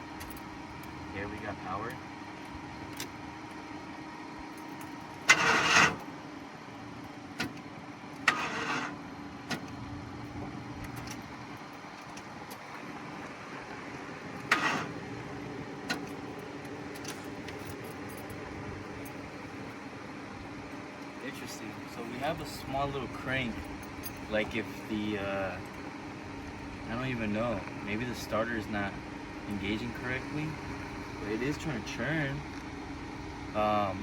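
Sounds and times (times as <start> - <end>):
car engine idling hum: 0.0 - 34.0
engine starter cranking weakly: 5.2 - 6.1, 8.2 - 9.7, 14.4 - 15.0.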